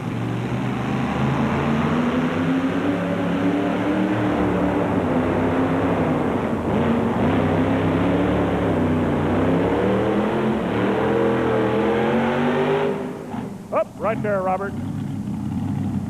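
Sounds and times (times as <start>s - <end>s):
tractor engine running flat out: 13.6s - 16.0s.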